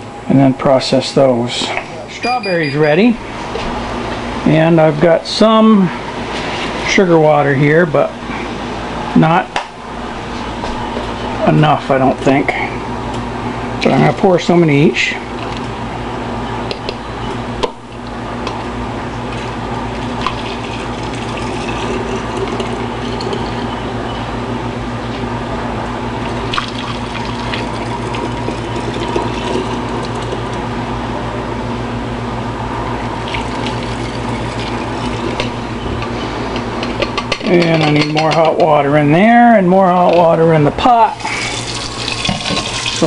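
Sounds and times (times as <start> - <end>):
water running into a container: 19.4 - 23.7, 26.3 - 30.5, 33.2 - 35.5, 41.2 - 43.0.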